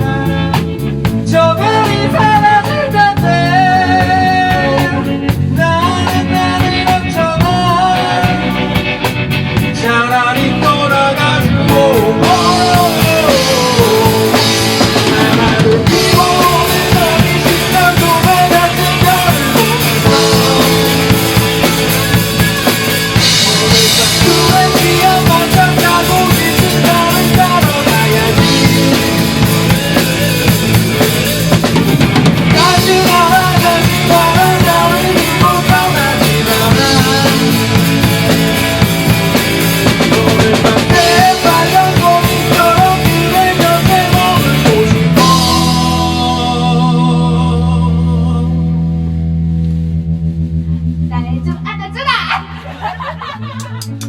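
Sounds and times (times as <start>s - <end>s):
drum kit beat: 0.0s - 48.0s, 52.9s - 54.0s
rock band playing live: 0.0s - 54.0s
lead melody bending in pitch: 12.1s - 31.5s.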